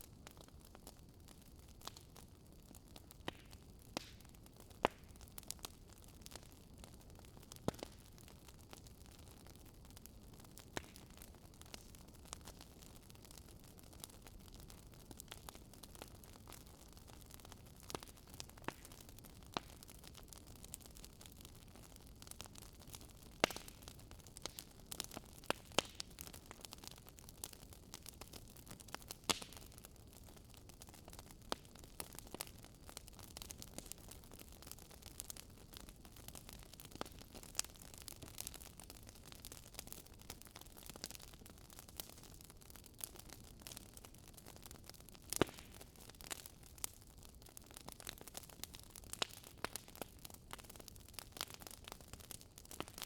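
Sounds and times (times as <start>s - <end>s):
wood fire crackling: 0.0s - 53.0s
sharp pops and snaps: 25.5s - 26.0s.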